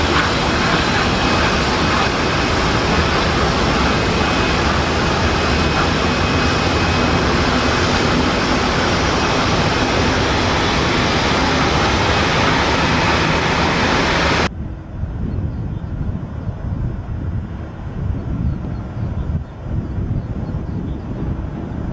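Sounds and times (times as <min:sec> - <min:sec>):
jet engines roaring: 0:00.0 - 0:15.2
low wind rumble: 0:00.0 - 0:21.9.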